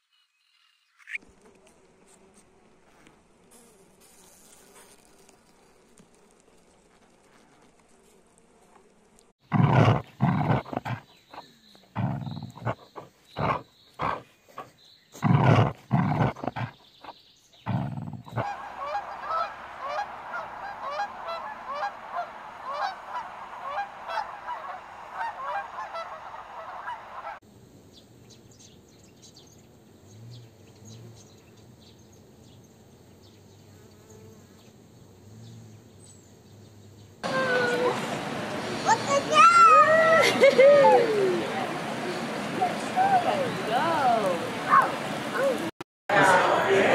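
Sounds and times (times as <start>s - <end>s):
honeybees humming: 1.2s - 25.6s, 28.3s - 45.7s
large animal deep calls: 9.5s - 16.8s
flock of geese honking: 18.4s - 27.4s.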